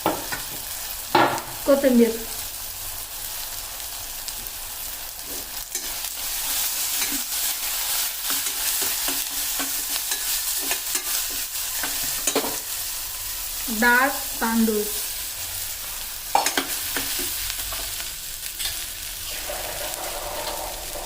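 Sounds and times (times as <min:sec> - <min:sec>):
spices sizzling in hot oil: 0:00.0 - 0:21.0
spatula scraping and knocking pan: 0:18.6 - 0:21.0.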